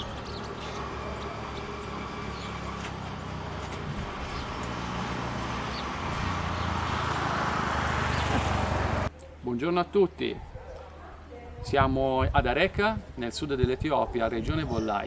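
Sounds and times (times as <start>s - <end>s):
vehicle engine running: 0.0s - 9.1s.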